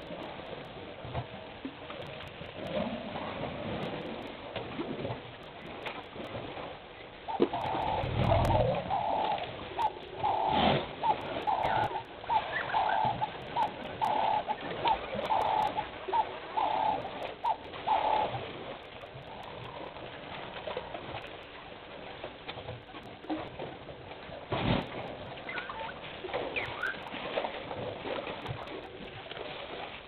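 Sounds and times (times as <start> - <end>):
dove calling: 7.2 - 18.5, 25.4 - 27.1.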